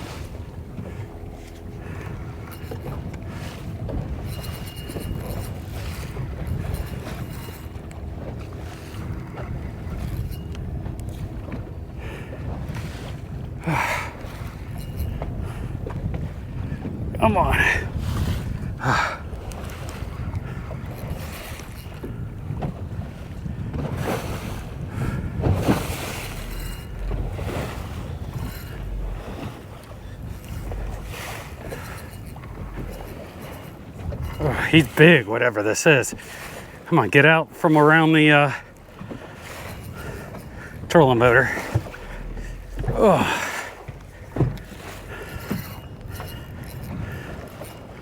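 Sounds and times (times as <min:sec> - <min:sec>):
wind rushing over microphone: 0:00.0 - 0:37.5
water against boat hull: 0:00.0 - 0:48.0.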